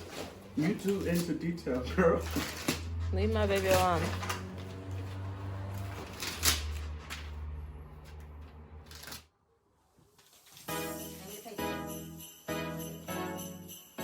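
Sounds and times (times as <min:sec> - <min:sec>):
rustling handling noise: 0:00.0 - 0:07.4.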